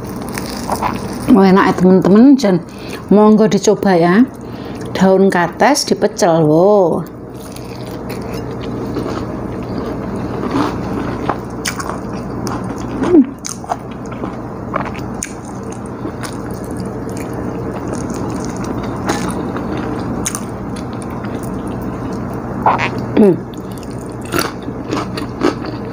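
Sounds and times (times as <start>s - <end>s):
person chewing food: 0.0s - 1.3s, 4.3s - 5.0s, 7.3s - 25.9s
low background hum: 0.0s - 25.9s.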